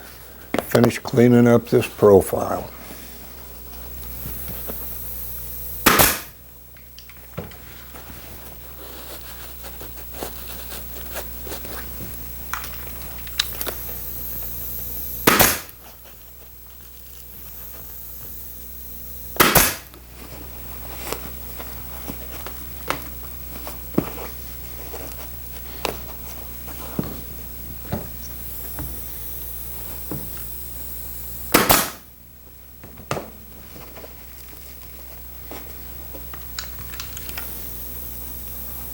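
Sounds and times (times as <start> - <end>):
steady low hum: 0.0 - 38.9
staple gun firing: 5.9 - 6.3, 15.2 - 15.7, 19.4 - 19.8, 31.5 - 32.0.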